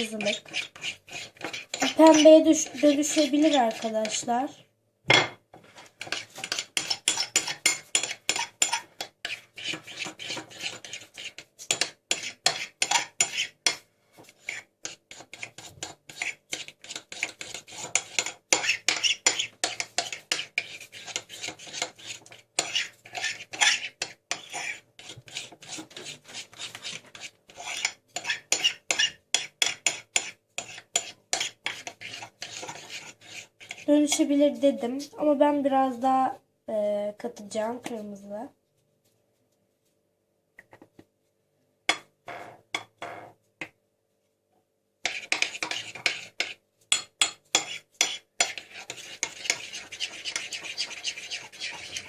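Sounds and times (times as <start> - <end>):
teaspoon scraping a plate: 0.0 - 4.3, 5.8 - 34.3, 45.0 - 52.0.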